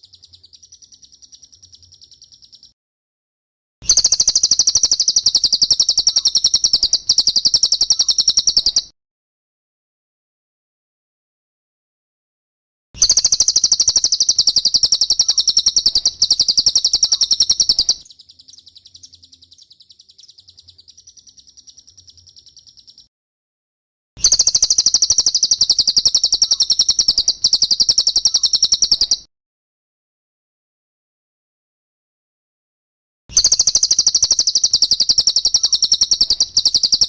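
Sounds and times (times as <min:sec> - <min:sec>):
bird trilling: 0:03.9 - 0:08.9, 0:13.0 - 0:23.1, 0:24.2 - 0:29.3, 0:33.3 - 0:37.0.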